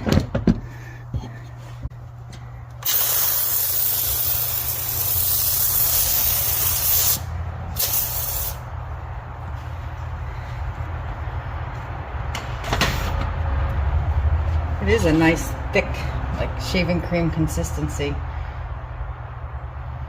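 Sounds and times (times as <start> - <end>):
foam sprayer hissing: 2.8 - 8.7.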